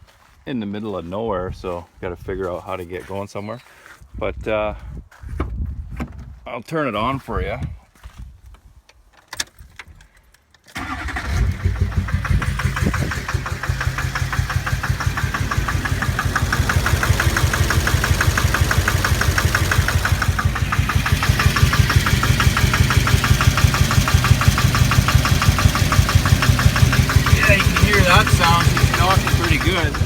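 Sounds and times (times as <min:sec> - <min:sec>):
diesel engine knocking idle: 0:10.8 - 0:30.0.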